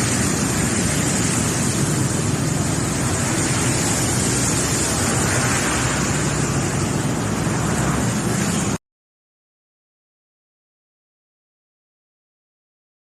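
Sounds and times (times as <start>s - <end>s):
floodwater rushing: 0.0s - 8.8s
traffic: 0.0s - 8.8s.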